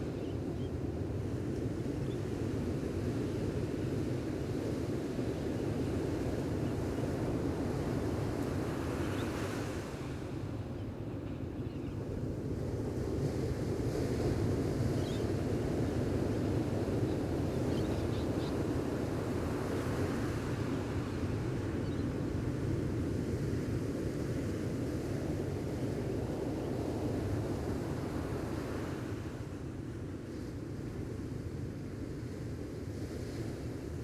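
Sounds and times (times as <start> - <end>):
ocean waves washing on beach: 12.2 - 34.0.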